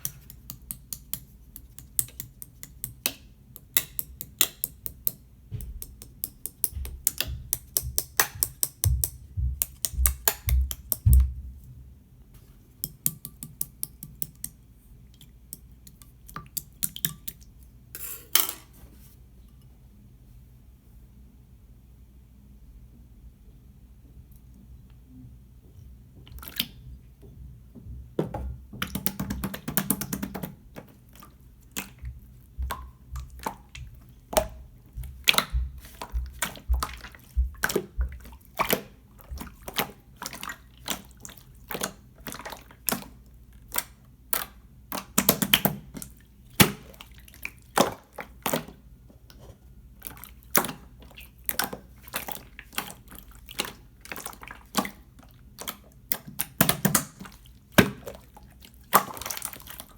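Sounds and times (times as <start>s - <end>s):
slime squishing with wet pops: 0.0s - 11.6s, 12.8s - 17.7s, 28.8s - 59.9s.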